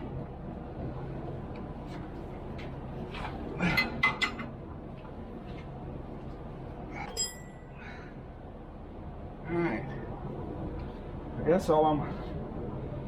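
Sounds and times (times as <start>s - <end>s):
steady low hum: 0.0s - 13.0s
metal tools clinking: 7.0s - 7.6s.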